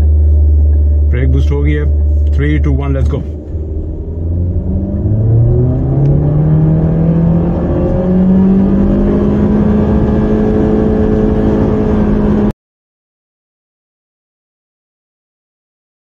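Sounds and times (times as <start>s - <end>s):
car engine at full throttle: 0.0s - 12.5s.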